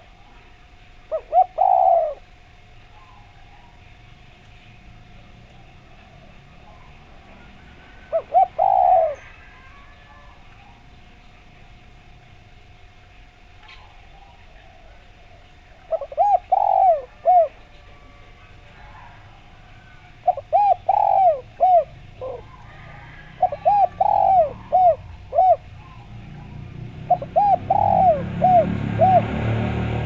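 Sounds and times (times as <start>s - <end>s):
dove cooing: 1.0s - 3.8s, 5.1s - 11.1s, 13.7s - 30.0s.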